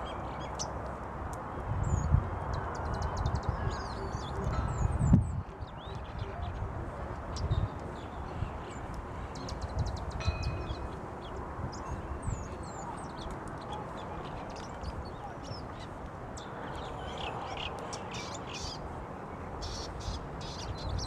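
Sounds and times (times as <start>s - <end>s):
birds chirping: 1.8s - 21.0s.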